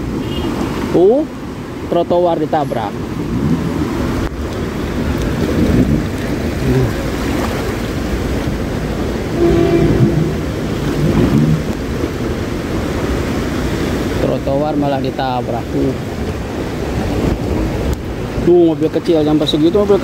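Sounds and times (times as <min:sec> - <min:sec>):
car engines: 0:00.0 - 0:20.0
cars driving through floodwater: 0:00.0 - 0:20.0
wind on microphone: 0:03.1 - 0:14.2, 0:16.2 - 0:18.4
steady tone: 0:09.3 - 0:11.8.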